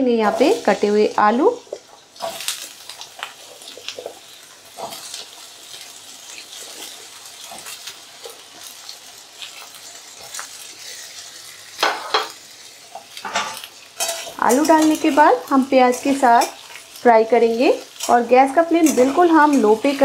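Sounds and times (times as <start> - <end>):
potatoes and onion sizzling in oil: 0.0 - 20.0
spatula scraping pan: 17.9 - 20.0.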